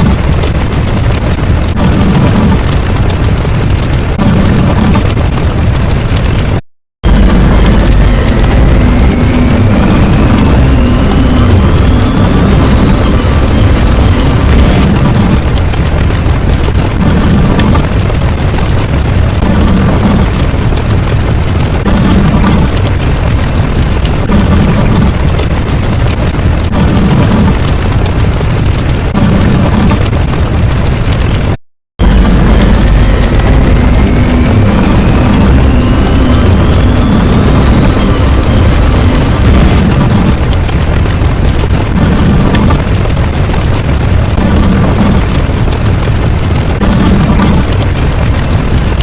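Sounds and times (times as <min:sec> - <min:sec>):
explosion-like rumble: 0:00.0 - 0:49.0.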